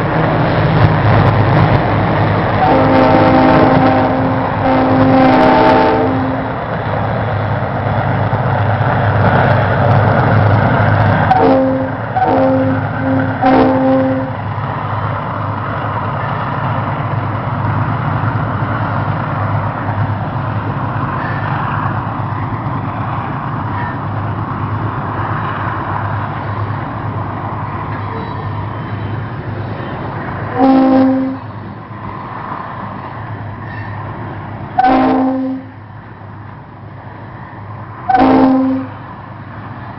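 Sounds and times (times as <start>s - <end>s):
diesel locomotive engines: 0.0s - 39.9s
train rolling noise: 0.0s - 39.9s
air horn blasts: 2.6s - 6.6s, 11.3s - 14.4s, 30.5s - 31.6s, 34.8s - 35.8s, 38.1s - 39.0s.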